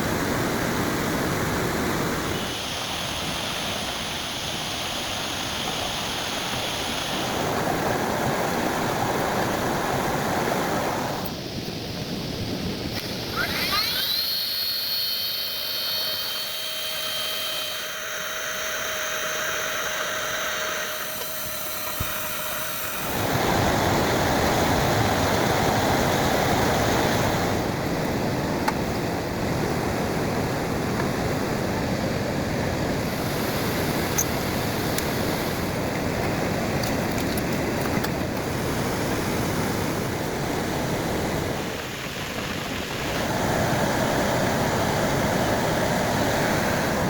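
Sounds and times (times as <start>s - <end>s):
high whine: 10.9s - 36.9s
heavy rain hissing: 21.3s - 36.7s.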